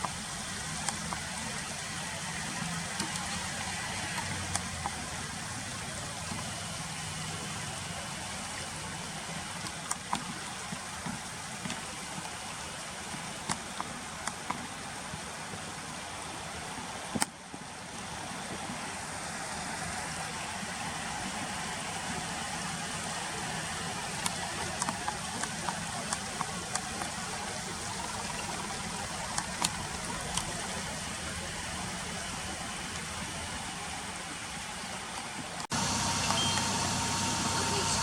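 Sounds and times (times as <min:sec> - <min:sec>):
river water rushing: 0:00.0 - 0:38.0
faint clicks: 0:23.7 - 0:31.4.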